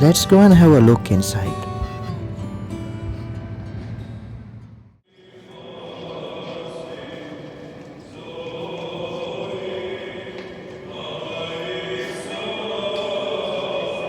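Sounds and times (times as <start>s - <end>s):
choir chanting: 5.1s - 14.0s.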